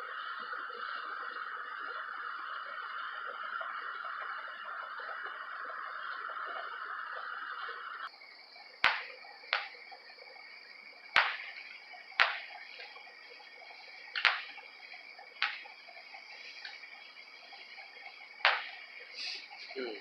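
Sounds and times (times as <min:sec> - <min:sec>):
steady high whine: 0:00.0 - 0:20.0
steady hiss: 0:00.0 - 0:20.0
firework bangs: 0:08.7 - 0:10.2, 0:10.9 - 0:19.8.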